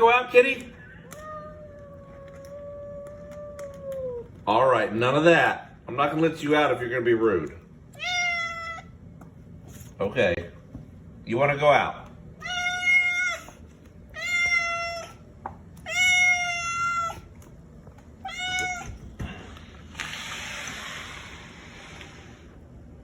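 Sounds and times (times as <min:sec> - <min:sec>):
cat meowing: 0:01.0 - 0:04.4, 0:07.9 - 0:09.0, 0:12.4 - 0:17.3, 0:18.2 - 0:19.2
steady rushing hiss: 0:19.4 - 0:22.6.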